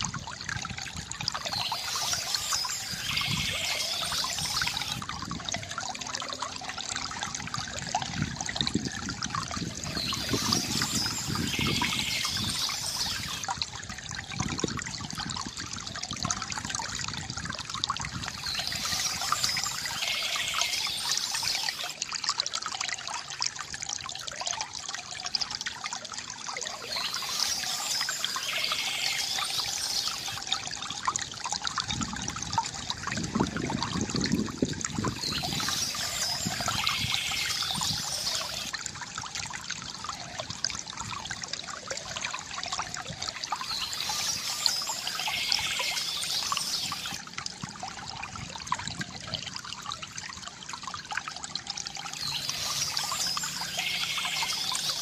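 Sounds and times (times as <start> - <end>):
fountain water trickling: 0.0 - 55.0
birds chirping: 1.4 - 5.0, 9.8 - 13.5, 18.3 - 21.9, 26.6 - 30.4, 35.1 - 38.7, 43.5 - 47.2, 52.2 - 55.0.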